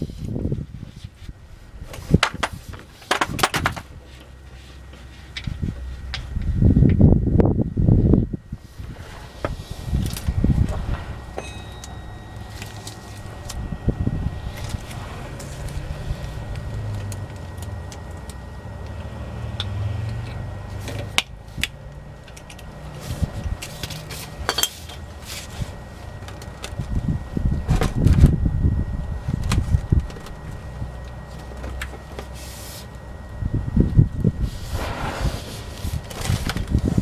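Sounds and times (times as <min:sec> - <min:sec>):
low rumble: 0:03.8 - 0:31.2
hand tools clinking: 0:11.3 - 0:13.6, 0:23.6 - 0:25.5.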